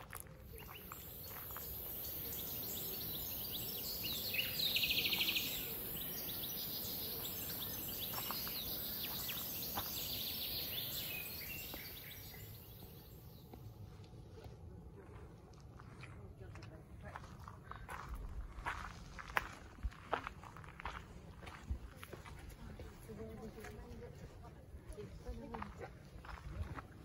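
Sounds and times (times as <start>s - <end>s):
small birds chirping: 0.0s - 14.1s.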